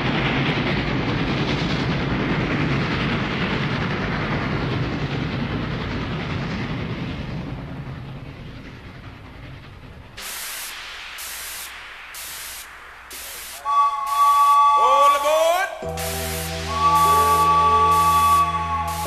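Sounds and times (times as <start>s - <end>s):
train rumbling: 0.0s - 19.0s
rhythmic hissing bursts: 10.1s - 19.0s.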